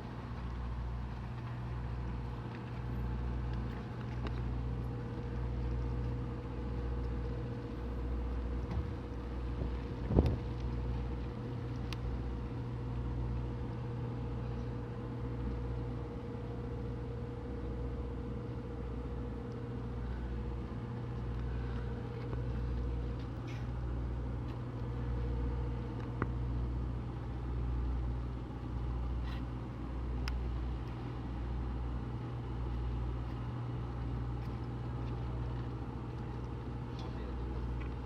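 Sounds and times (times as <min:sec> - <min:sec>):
electric bus machinery humming: 0:00.0 - 0:38.0
steady whine: 0:00.0 - 0:38.0.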